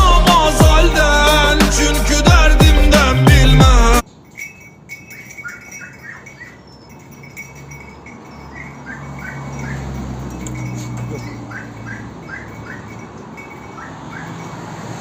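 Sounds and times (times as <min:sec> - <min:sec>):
bird chirping: 0:04.1 - 0:07.1.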